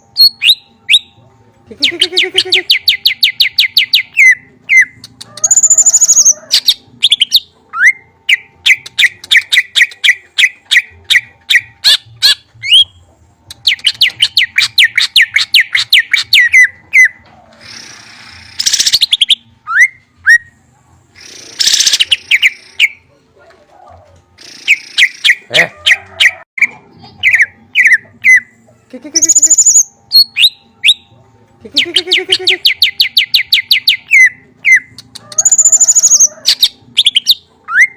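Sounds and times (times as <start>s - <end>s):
songbird trilling: 29.2s - 31.0s.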